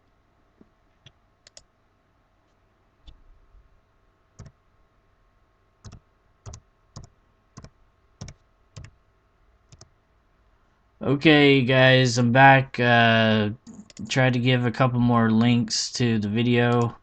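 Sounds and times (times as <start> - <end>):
computer mouse clicks: 1.0 - 1.7, 5.8 - 9.0, 9.7 - 9.9, 13.6 - 14.1
keyboard clicks: 1.0 - 1.7, 5.8 - 9.0, 13.6 - 14.1.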